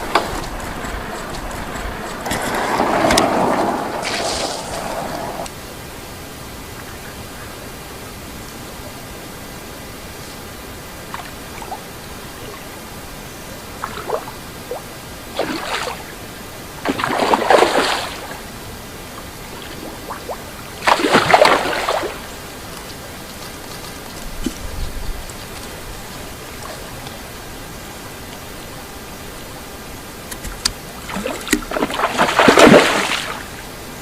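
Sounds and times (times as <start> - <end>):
water splashing: 0.0 - 5.5, 13.8 - 16.2, 16.8 - 18.6, 19.4 - 23.1, 30.4 - 33.8
steady hiss: 0.0 - 34.0.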